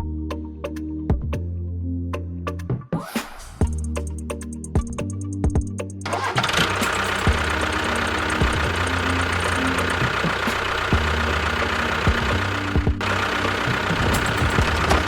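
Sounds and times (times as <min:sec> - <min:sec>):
vehicle engine running: 0:06.0 - 0:15.0
engine knocks: 0:06.1 - 0:15.0
short music: 0:06.1 - 0:15.0.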